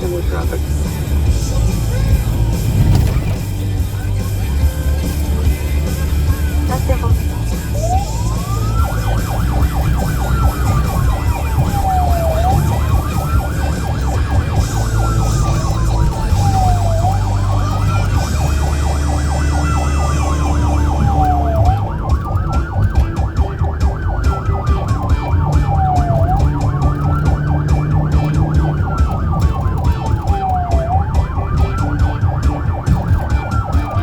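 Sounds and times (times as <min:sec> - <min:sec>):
low vehicle rumble: 0:00.0 - 0:34.0
police siren wailing: 0:00.0 - 0:34.0
rapidly pulsing siren tone: 0:00.0 - 0:34.0.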